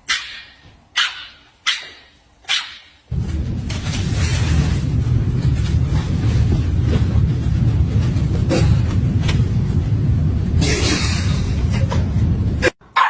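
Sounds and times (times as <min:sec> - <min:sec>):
loud low rumble: 0:03.1 - 0:12.8.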